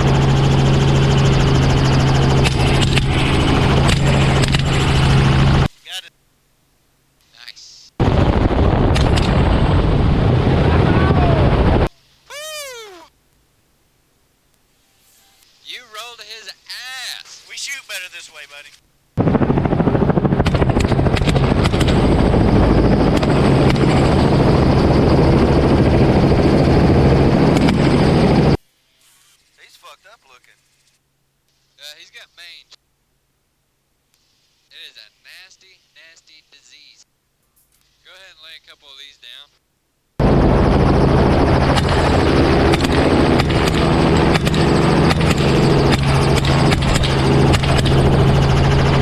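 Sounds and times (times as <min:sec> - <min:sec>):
helicopter rotor beat: 0:00.0 - 0:05.7, 0:08.0 - 0:11.9, 0:19.2 - 0:28.6, 0:40.2 - 0:49.0
engine and wind noise: 0:19.3 - 0:28.5, 0:40.2 - 0:49.0.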